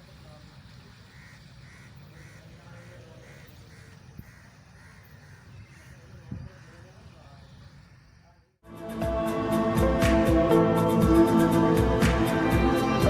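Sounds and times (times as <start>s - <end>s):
bird calling: 0.7s - 8.3s.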